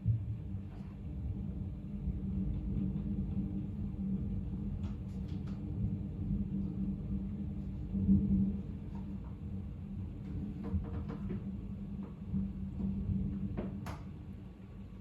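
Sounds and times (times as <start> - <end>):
low rumble with hum: 0.0 - 15.0.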